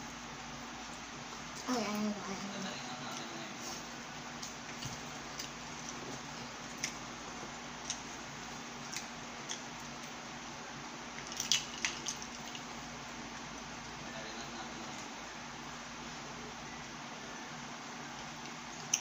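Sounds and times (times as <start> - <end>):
chewing with wet mouth clicks: 4.4 - 7.1, 7.8 - 10.2, 11.1 - 12.7, 18.2 - 19.0.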